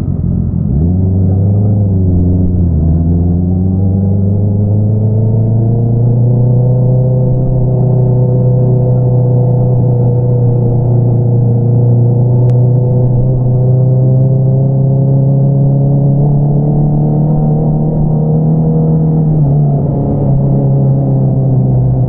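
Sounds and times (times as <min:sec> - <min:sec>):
motorcycle engine cruising: 0:00.0 - 0:22.0.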